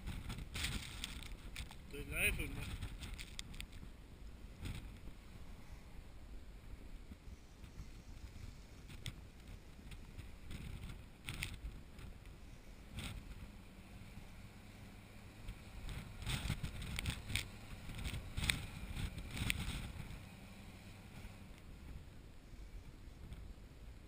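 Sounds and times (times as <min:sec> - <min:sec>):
wind noise on microphone: 0:00.0 - 0:14.4, 0:15.3 - 0:24.0
heavy vehicle engine running: 0:12.4 - 0:22.0.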